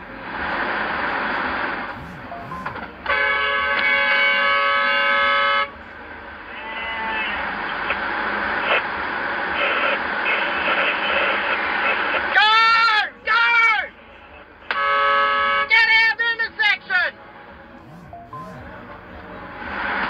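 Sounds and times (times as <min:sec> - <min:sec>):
road noise: 0:00.0 - 0:20.0
distant horn tones: 0:01.7 - 0:07.2, 0:13.8 - 0:16.2, 0:16.8 - 0:20.0
car horn blast: 0:01.9 - 0:05.8, 0:14.7 - 0:16.2.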